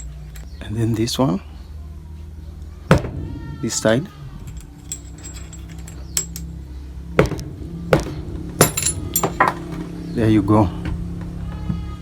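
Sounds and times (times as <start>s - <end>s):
metal knocking on wooden block: 4.5s - 6.5s, 8.0s - 9.8s.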